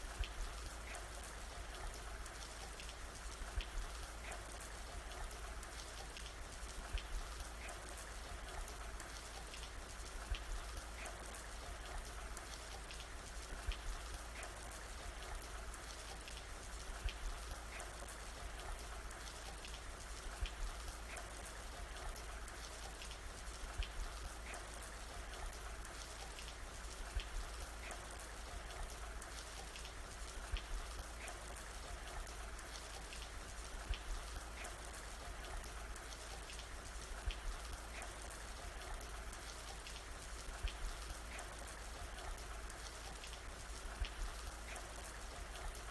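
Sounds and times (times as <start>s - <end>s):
rain falling on a surface: 0.0s - 45.9s.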